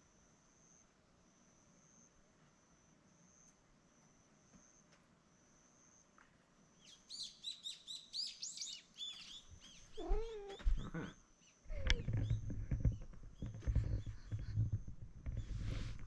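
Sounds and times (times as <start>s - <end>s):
bird twittering: 6.8s - 14.6s
cat meowing: 10.0s - 11.1s
low thumps: 11.7s - 16.0s
rustling: 11.7s - 16.0s.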